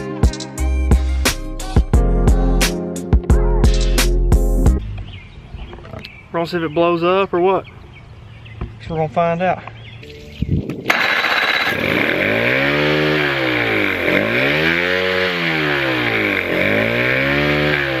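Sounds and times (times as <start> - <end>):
outboard motor running: 10.9 - 18.0.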